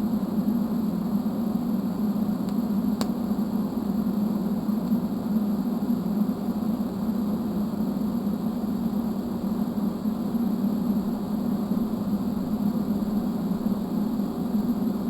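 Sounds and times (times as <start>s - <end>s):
welding arc humming and hissing: 10.8s - 15.0s.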